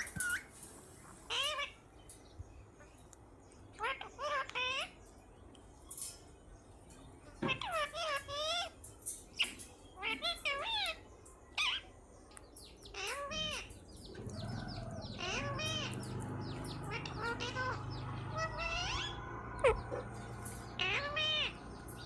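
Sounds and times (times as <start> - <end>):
parrot squeak: 1.3 - 1.8, 3.8 - 5.0, 7.5 - 11.0, 11.6 - 11.9, 12.9 - 13.7, 15.1 - 16.0, 16.9 - 20.0, 20.7 - 21.6.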